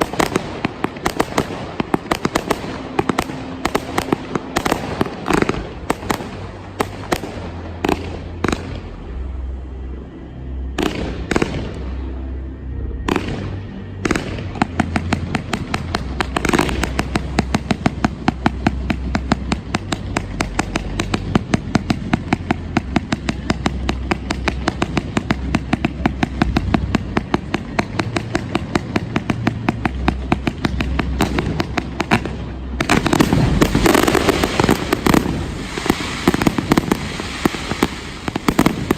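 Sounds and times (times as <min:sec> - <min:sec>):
fireworks bangs and crackling: 0:00.0 - 0:09.4, 0:10.7 - 0:12.1, 0:13.0 - 0:38.9
music: 0:00.0 - 0:38.9.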